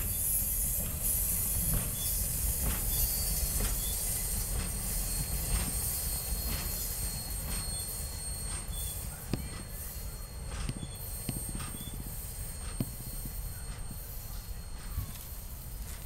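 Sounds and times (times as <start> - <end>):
sharp train clacks: 0.0 - 16.0
train wheels rumbling on rails: 0.0 - 16.0.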